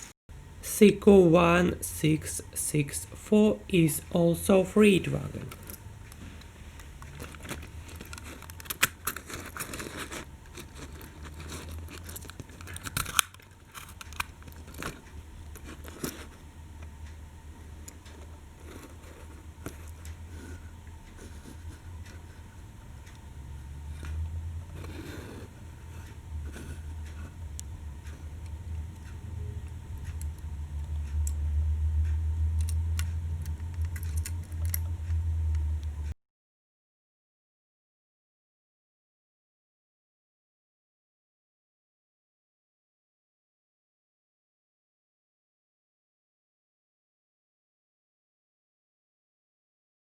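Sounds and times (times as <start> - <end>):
low steady hum: 0.0 - 36.2
low steady rumble: 0.3 - 36.2
rustling: 5.4 - 16.5
toy train wagons clicking: 7.0 - 16.4.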